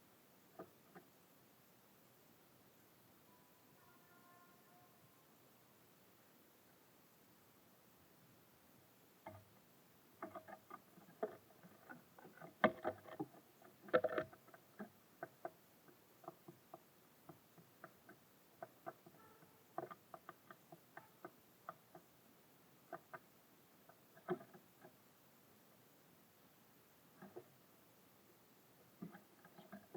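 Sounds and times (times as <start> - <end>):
birds pecking at feeder: 9.2 - 25.0, 28.8 - 29.9.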